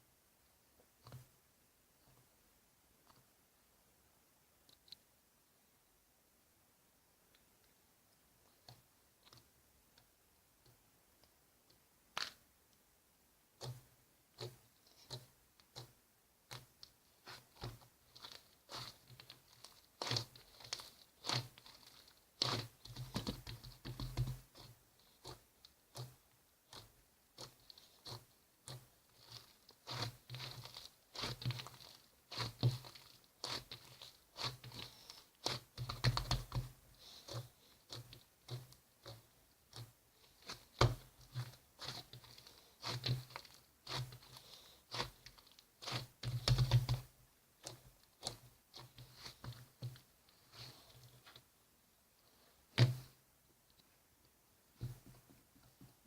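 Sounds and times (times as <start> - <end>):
crunching and chewing: 17.3 - 47.0.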